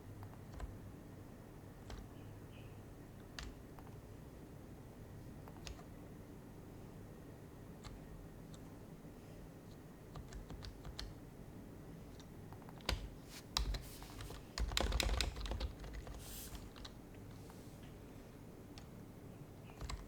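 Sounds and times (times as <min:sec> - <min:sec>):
keyboard typing: 0:00.2 - 0:00.8, 0:01.8 - 0:02.2, 0:03.2 - 0:04.0, 0:05.4 - 0:05.9, 0:10.1 - 0:11.2, 0:12.1 - 0:17.0, 0:19.6 - 0:20.0.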